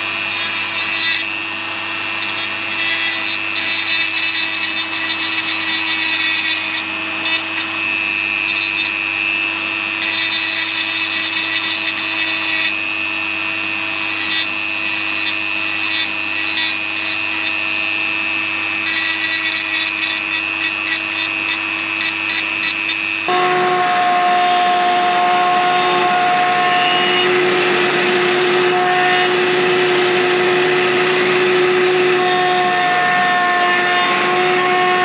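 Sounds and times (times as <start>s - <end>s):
woodworking power tool humming: 0.0s - 35.0s.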